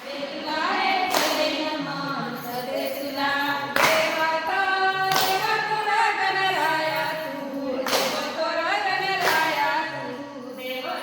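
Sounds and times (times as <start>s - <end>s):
women singing a folk song: 0.0s - 11.0s
sharp claps: 1.0s - 1.6s, 3.7s - 4.3s, 5.0s - 5.6s, 7.8s - 8.4s, 9.1s - 9.8s.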